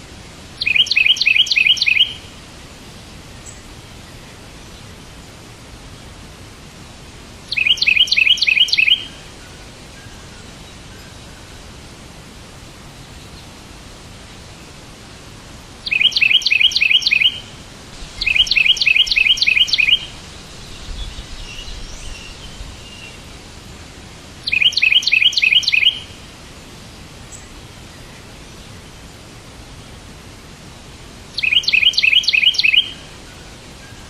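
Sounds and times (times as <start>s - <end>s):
background hiss: 0.0s - 34.0s
bird chirping: 0.6s - 2.3s, 7.5s - 9.2s, 15.8s - 23.3s, 24.4s - 26.2s, 31.4s - 34.0s.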